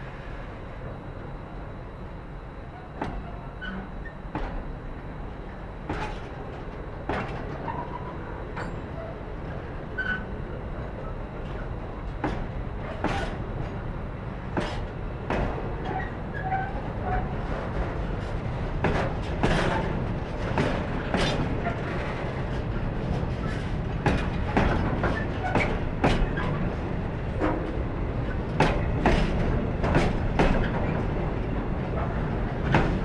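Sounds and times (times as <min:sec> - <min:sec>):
train wagons rumbling: 0:01.9 - 0:33.0.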